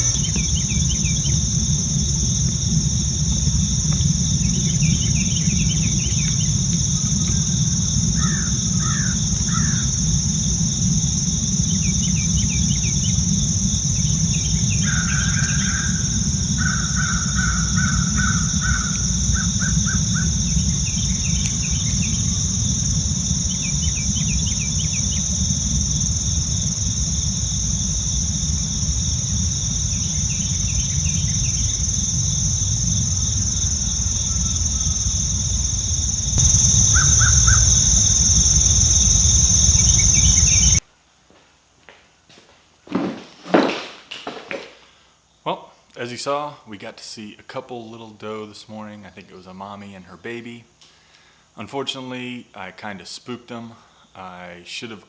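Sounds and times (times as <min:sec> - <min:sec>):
high insect drone: 0:00.0 - 0:40.8
low rumble: 0:27.0 - 0:40.8
birds calling: 0:35.6 - 0:40.8.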